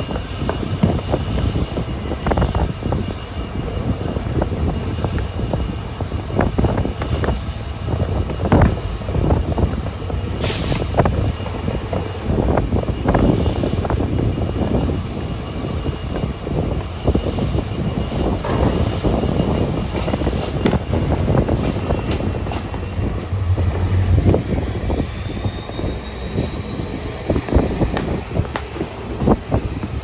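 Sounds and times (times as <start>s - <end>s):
locomotive high whine: 0.0s - 30.0s
train wheels knocking over rail joints: 17.8s - 25.0s.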